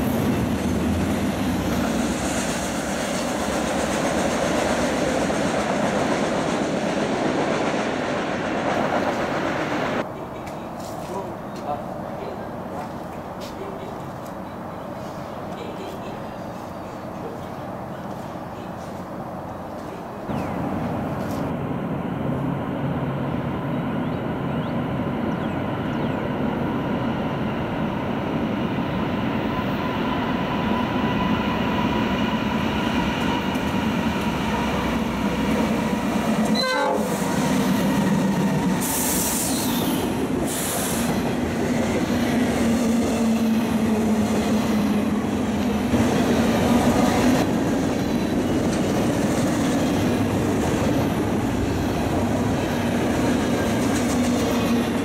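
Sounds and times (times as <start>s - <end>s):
locomotive engines humming low: 0.0s - 55.0s
train horn: 36.4s - 37.5s
train wheels clacking over rail joints: 53.1s - 55.0s.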